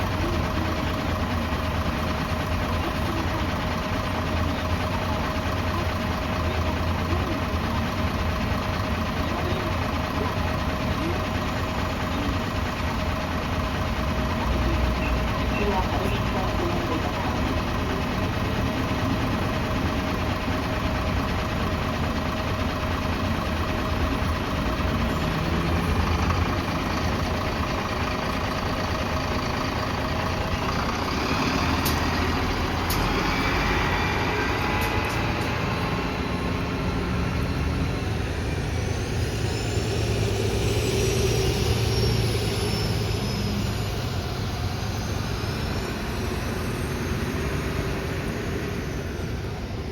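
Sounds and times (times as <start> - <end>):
bus engine running: 0.0 - 49.9
whine rising and falling: 38.0 - 49.3.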